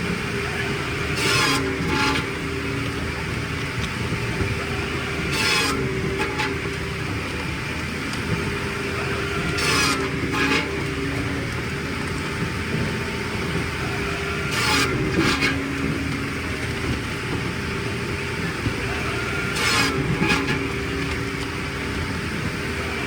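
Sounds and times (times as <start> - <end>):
machinery engine running: 0.0 - 23.0
high scraping bursts: 0.6 - 2.8, 4.6 - 7.1, 8.8 - 11.5, 13.7 - 16.8, 17.8 - 21.5.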